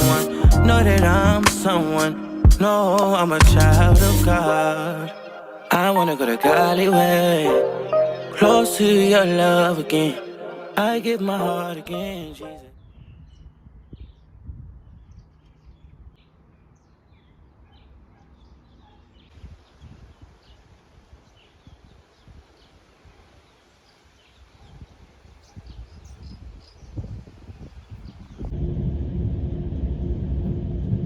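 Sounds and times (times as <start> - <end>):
low rumble: 0.0 - 1.4, 28.5 - 31.0
small birds chirping: 12.8 - 28.5.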